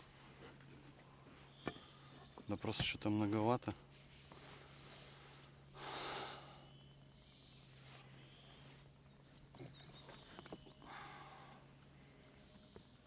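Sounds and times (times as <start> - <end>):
distant motor hum: 0.0 - 13.0.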